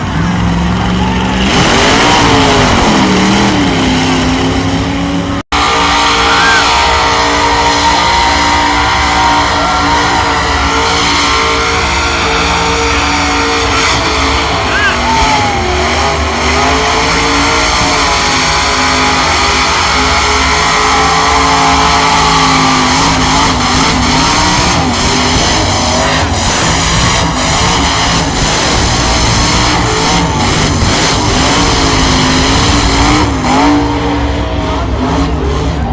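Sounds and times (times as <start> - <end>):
truck engine at high revs: 0.0 - 35.9
tyres squealing: 5.6 - 17.8
tyres screeching on pavement: 5.6 - 33.2.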